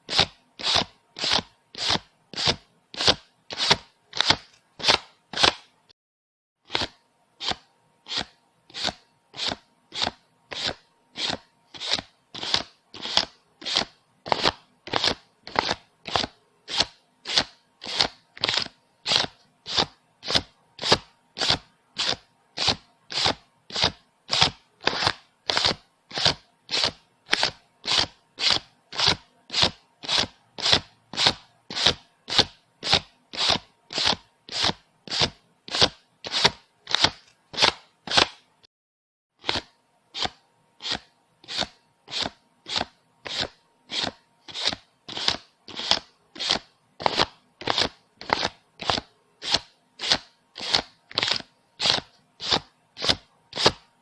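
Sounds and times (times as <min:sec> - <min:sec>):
banknotes being counted by hand: 0:00.1 - 0:05.7, 0:06.7 - 0:38.5, 0:39.4 - 0:54.0.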